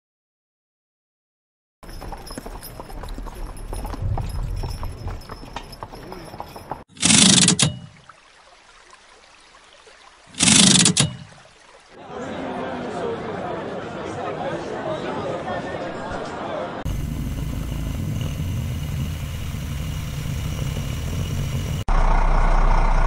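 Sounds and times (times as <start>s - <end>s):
horse hooves on cobbles: 1.8s - 8.2s
street bustle: 12.0s - 23.0s.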